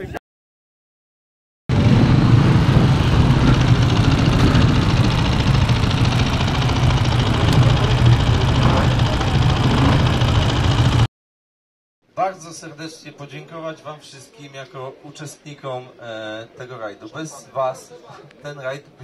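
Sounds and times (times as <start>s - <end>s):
dirt bike engine idling: 1.7s - 11.1s.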